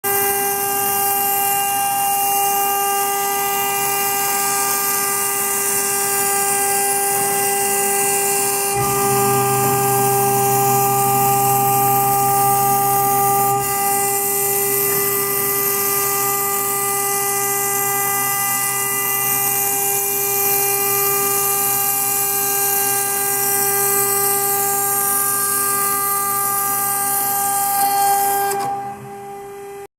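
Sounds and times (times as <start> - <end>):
router spindle whine: 0.0 - 29.9
low hum: 8.7 - 15.0.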